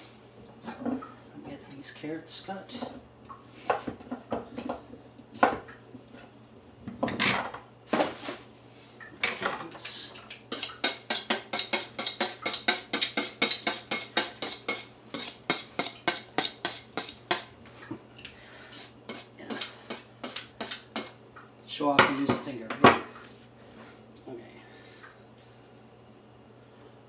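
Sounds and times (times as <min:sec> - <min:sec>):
knife chopping on cutting board: 0:10.5 - 0:17.5.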